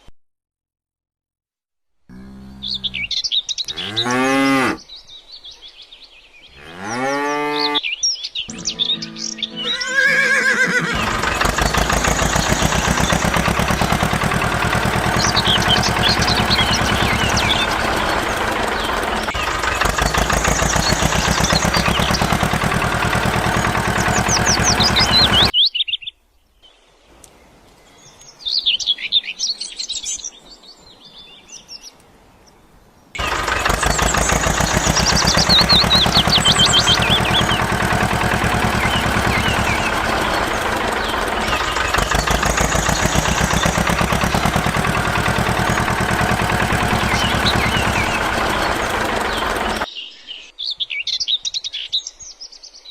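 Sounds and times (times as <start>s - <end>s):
birds chirping: 2.1s - 52.9s
engine chugging: 8.5s - 25.5s, 33.2s - 49.9s.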